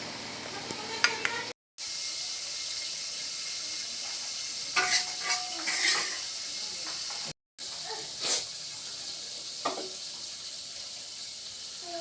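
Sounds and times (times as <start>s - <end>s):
food sizzling in a frying pan: 0.0s - 12.0s
utensil clinking against pan: 4.8s - 6.2s.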